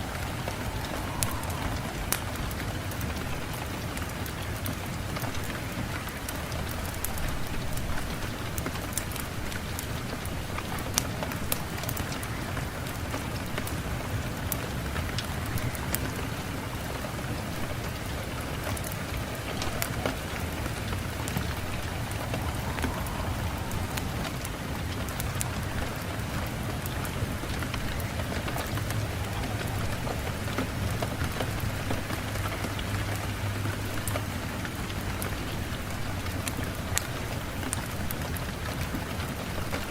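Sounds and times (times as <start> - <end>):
steady rain hissing: 0.0 - 39.9
low rumble: 19.2 - 32.5.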